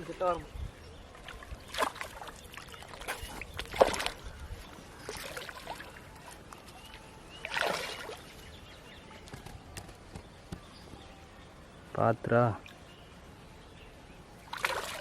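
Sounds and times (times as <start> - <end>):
water splashing: 1.1 - 4.4, 5.0 - 8.5, 14.4 - 15.0.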